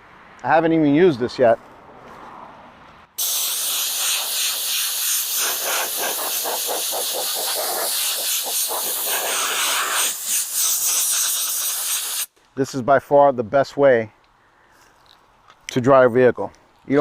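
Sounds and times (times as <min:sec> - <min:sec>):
compressed air blow gun hissing: 0:03.2 - 0:12.3.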